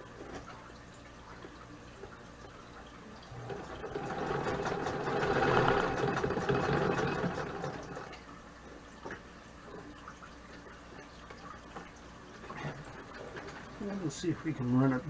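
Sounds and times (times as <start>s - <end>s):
sewing machine stitching: 3.3s - 8.2s.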